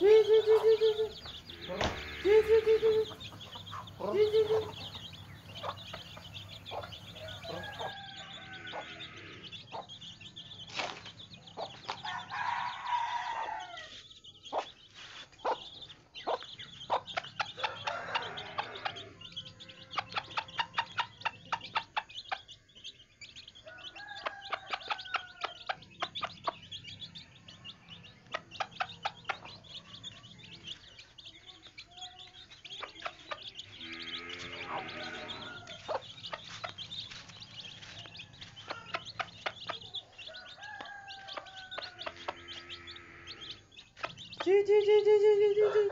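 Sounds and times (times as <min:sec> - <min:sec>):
chickens clucking: 0:00.0 - 0:45.9.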